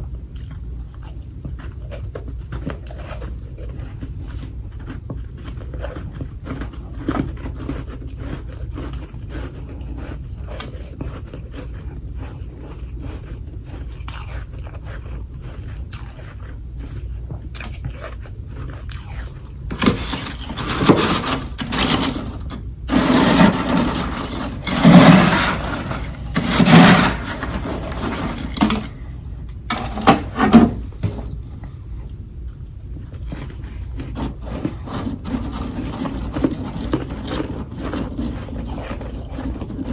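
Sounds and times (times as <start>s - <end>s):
person crunching frost: 1.0s - 29.2s, 32.5s - 39.9s.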